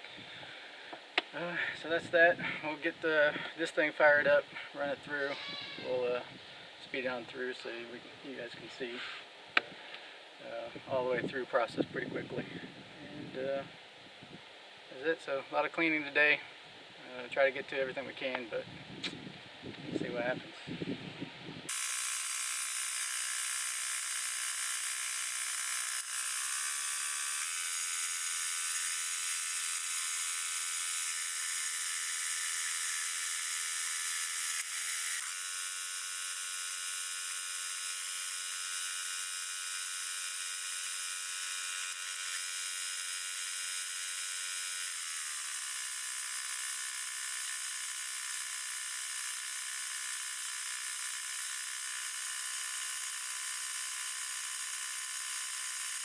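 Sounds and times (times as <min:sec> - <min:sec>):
sawmill blade high whine: 0:21.7 - 0:36.2.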